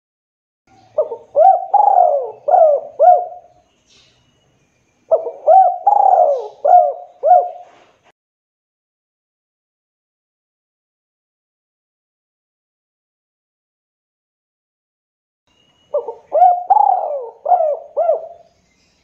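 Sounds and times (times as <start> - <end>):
dove cooing: 0.8 - 3.5, 5.1 - 7.9, 15.9 - 18.5.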